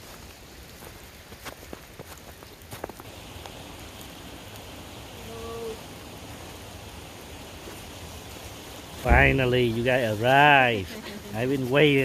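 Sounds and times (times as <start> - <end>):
outdoor rushing noise: 9.0 - 10.6.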